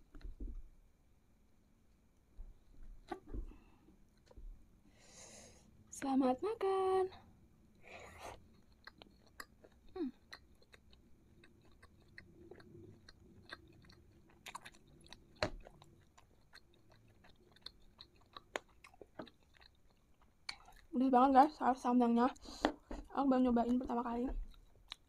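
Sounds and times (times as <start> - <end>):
close-miked chewing: 7.7 - 25.0.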